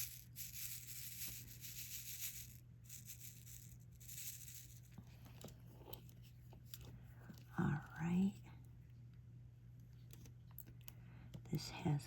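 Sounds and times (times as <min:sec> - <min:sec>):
small plastic beads rattling in tray: 0:00.0 - 0:05.0
steady low hum: 0:00.0 - 0:12.0.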